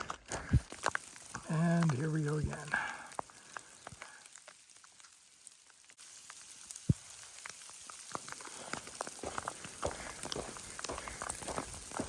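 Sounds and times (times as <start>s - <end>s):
faint hiss of rain: 0.0s - 12.0s
large raindrops ticking: 0.0s - 12.0s.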